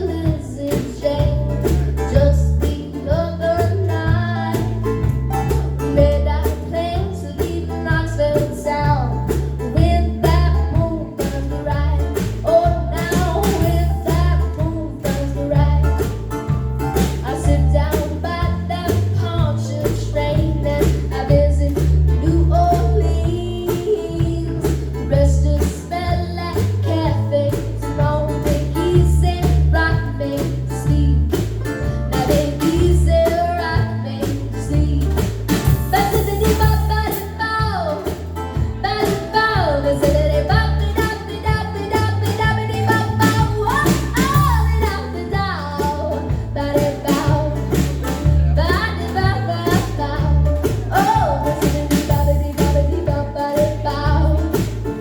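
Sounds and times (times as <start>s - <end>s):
girl singing: 0.0s - 55.0s
pulsing bass line: 0.0s - 55.0s
strummed guitar: 0.0s - 55.0s.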